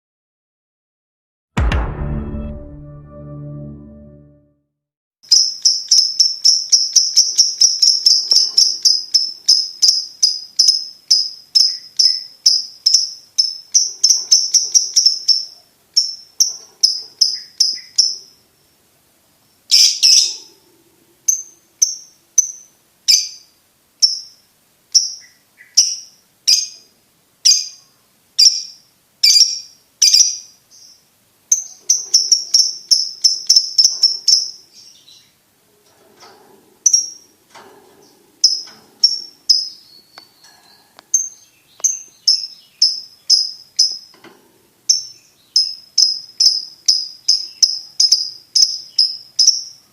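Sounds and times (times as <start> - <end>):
lovebird chirping: 5.3 - 18.4, 19.7 - 35.4, 38.4 - 44.2, 44.9 - 49.8.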